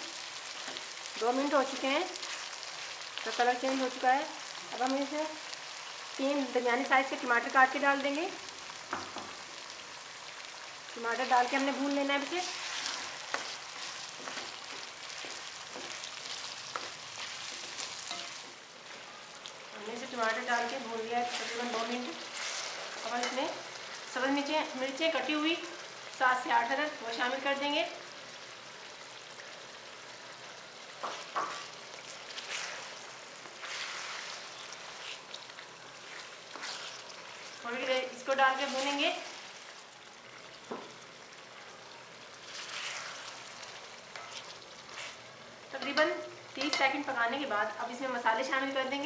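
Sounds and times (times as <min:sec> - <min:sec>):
food sizzling in hot oil: 0:00.0 - 0:49.0
spatula scraping pan: 0:11.7 - 0:18.5, 0:20.4 - 0:23.8, 0:31.1 - 0:37.6, 0:42.5 - 0:45.2.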